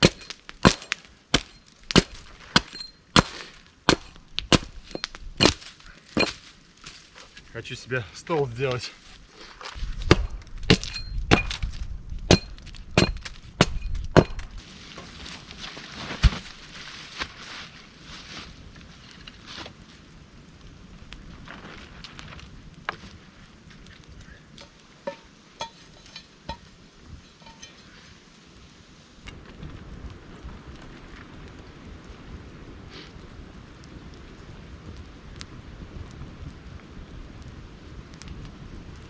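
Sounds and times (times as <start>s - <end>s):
wood being chopped: 0.0s - 7.0s, 10.0s - 14.6s, 16.1s - 16.6s
metallic ring: 25.1s - 26.7s, 27.3s - 27.9s.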